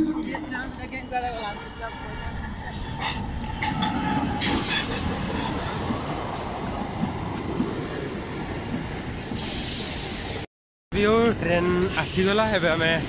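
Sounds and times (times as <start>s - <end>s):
train wheels rumbling and rattling: 0.0s - 10.4s.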